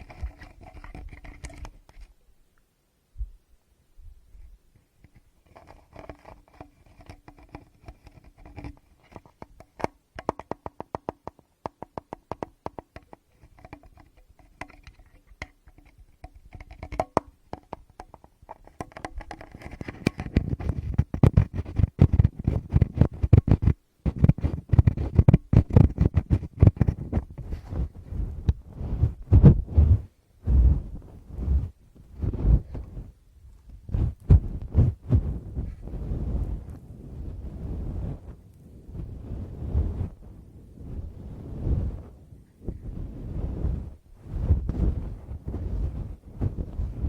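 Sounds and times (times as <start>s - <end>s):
rubbing over microphones: 0.0s - 2.2s, 4.3s - 11.0s, 12.4s - 47.0s
fingers tapping microphones: 5.0s - 30.0s, 33.7s - 35.8s
deep muffled thumps: 23.0s - 33.1s, 33.9s - 36.6s.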